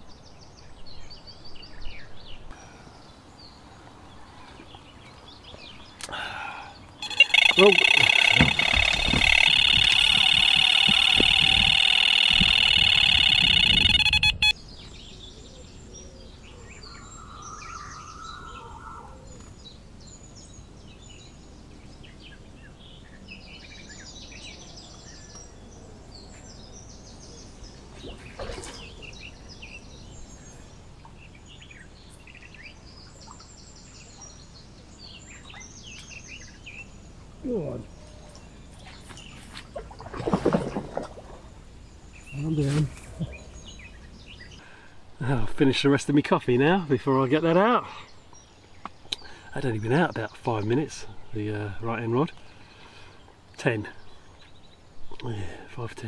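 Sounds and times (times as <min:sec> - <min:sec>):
birds chirping and singing: 0:00.1 - 0:56.0
high tones over low rumble: 0:07.0 - 0:14.6.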